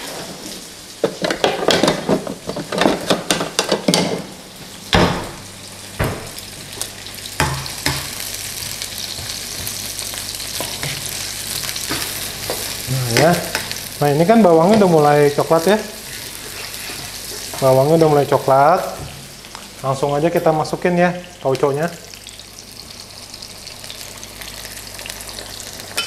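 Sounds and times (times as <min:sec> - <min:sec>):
vegetables sizzling in hot oil: 0:04.8 - 0:26.0
spatula scraping and knocking wok: 0:07.4 - 0:13.8, 0:14.6 - 0:17.8.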